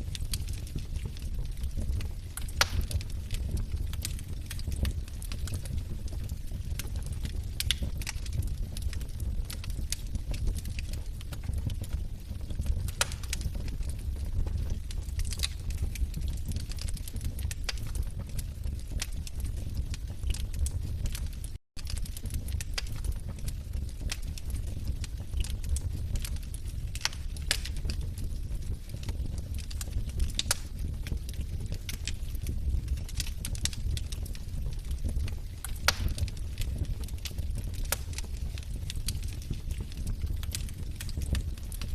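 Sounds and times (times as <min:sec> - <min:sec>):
flames rumbling: 0:00.0 - 0:41.9
log fire crackling: 0:00.0 - 0:41.9.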